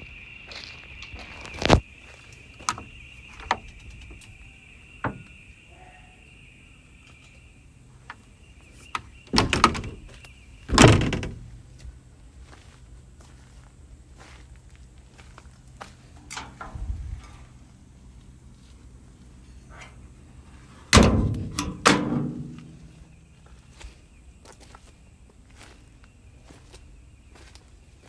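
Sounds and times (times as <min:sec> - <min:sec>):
metal door knocking and clanking: 0:09.3 - 0:10.0, 0:10.7 - 0:11.6, 0:20.9 - 0:22.8.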